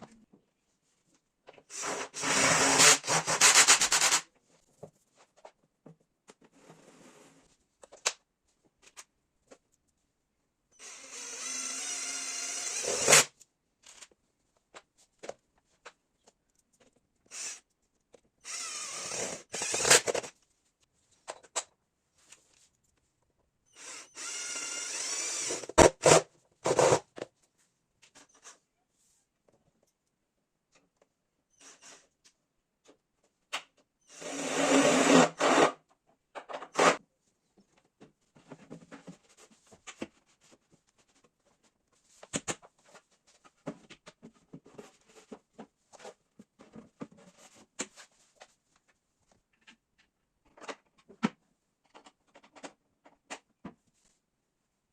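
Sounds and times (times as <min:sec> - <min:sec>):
power drill driving screws: 0:01.7 - 0:04.2, 0:10.8 - 0:13.3, 0:17.3 - 0:17.6, 0:18.4 - 0:20.3, 0:23.7 - 0:27.0, 0:34.1 - 0:35.8.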